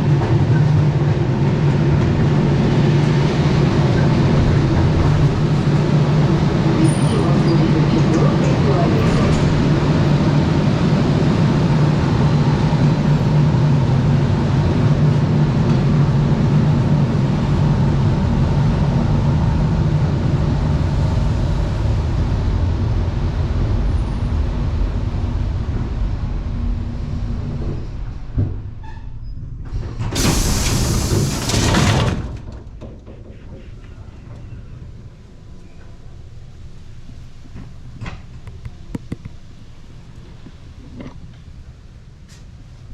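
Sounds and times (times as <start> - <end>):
electric train rumbling: 0.0 - 42.9.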